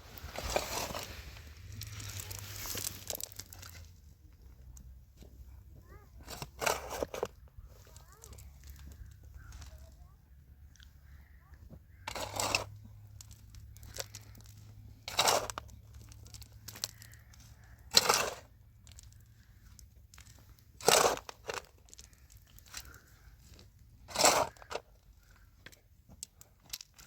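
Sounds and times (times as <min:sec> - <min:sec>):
scraping strokes: 0:00.0 - 0:03.8, 0:06.2 - 0:07.3, 0:12.0 - 0:12.8, 0:13.8 - 0:18.6, 0:20.7 - 0:23.2, 0:24.0 - 0:24.9.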